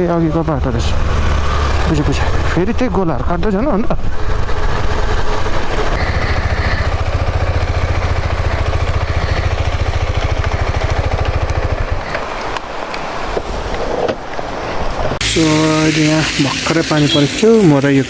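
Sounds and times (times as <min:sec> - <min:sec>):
motorcycle engine running: 0:00.0 - 0:12.5.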